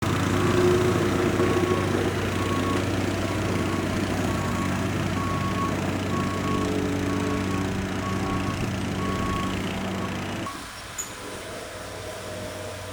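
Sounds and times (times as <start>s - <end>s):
heavy vehicle engine running: 0.0s - 12.9s
reversing alarm beeping: 0.5s - 11.1s.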